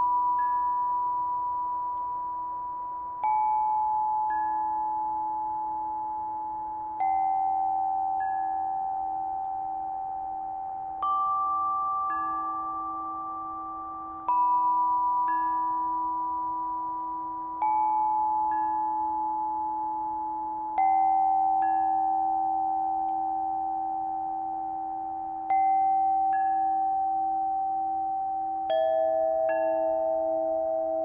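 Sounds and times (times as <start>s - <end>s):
low ringing tone: 0.0s - 31.0s
chime ringing: 7.0s - 17.8s.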